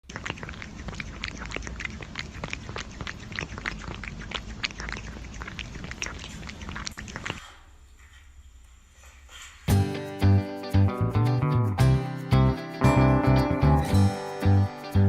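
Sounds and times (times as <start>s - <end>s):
pet animal clicking: 0.1s - 7.6s.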